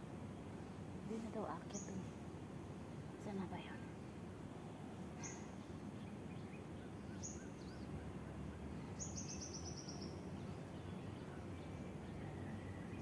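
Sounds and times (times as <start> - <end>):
songbird calling: 1.6 - 2.1, 5.1 - 13.0.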